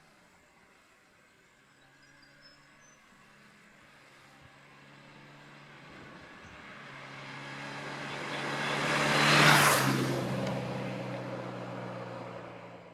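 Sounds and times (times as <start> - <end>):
vehicle passing by: 3.2 - 12.9.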